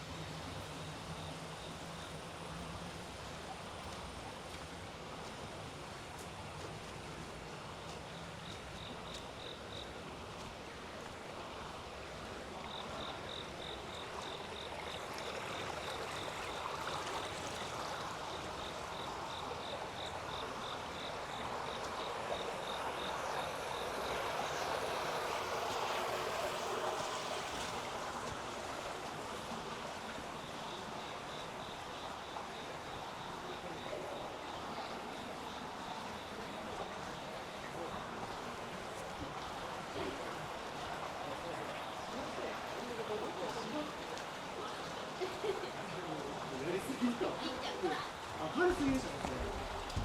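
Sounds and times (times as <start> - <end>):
water rushing: 0.0 - 50.0
insect chirping: 0.1 - 3.9, 7.6 - 28.2, 28.8 - 43.9.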